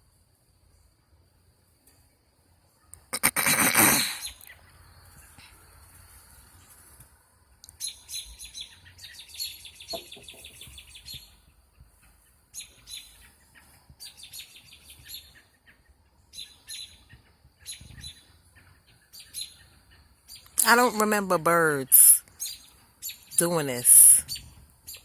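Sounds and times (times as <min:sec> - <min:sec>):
birds chirping rapidly: 0:07.8 - 0:15.6.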